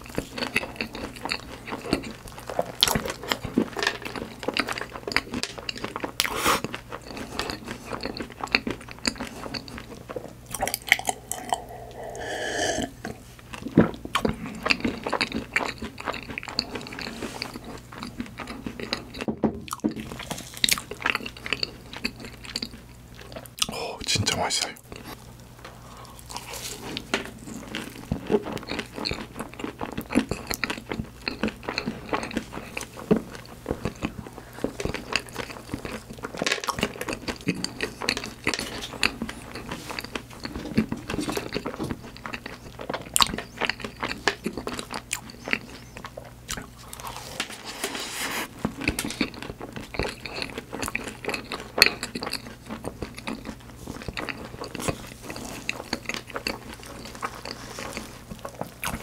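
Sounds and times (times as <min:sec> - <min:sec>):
biting and chewing pastry: 0:00.0 - 0:12.1, 0:13.0 - 0:24.0, 0:24.8 - 0:47.9, 0:48.5 - 0:59.0.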